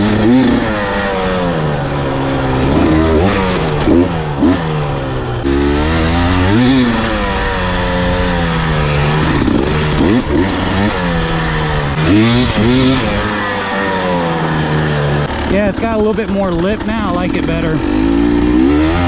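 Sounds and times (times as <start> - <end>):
engine revving: 0.0 - 19.0.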